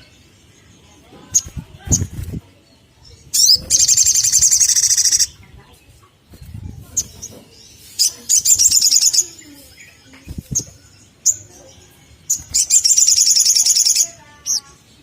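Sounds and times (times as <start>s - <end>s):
bird trilling: 3.3s - 5.4s, 12.3s - 14.6s
sharp bird chips: 3.3s - 5.4s, 6.4s - 11.5s, 12.3s - 14.7s.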